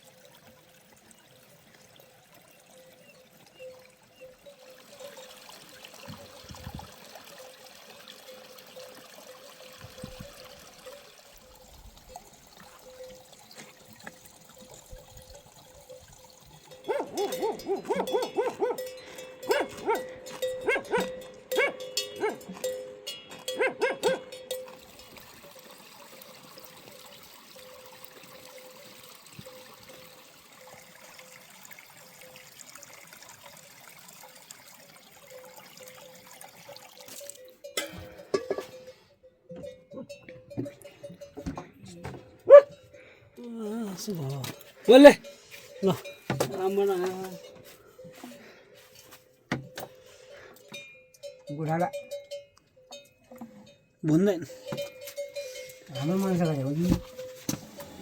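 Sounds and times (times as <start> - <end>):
water trickling: 0.0 - 39.0, 39.6 - 58.0
dog barking: 16.8 - 18.9, 19.5 - 22.5, 23.5 - 24.3, 42.5 - 42.8.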